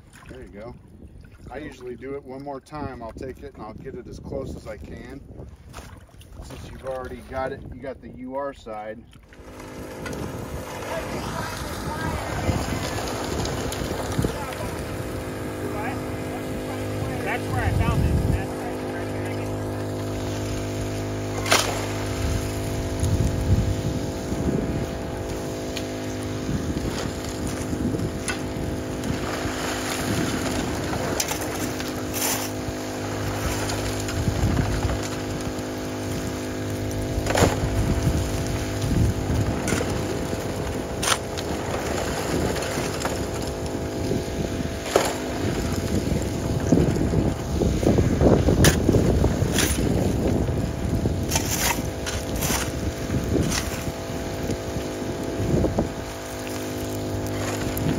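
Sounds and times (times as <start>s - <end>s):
water pump engine running: 9.2s - 57.9s
shovels scraping gravel: 21.3s - 22.1s, 26.8s - 35.6s, 48.6s - 50.0s, 51.2s - 54.0s.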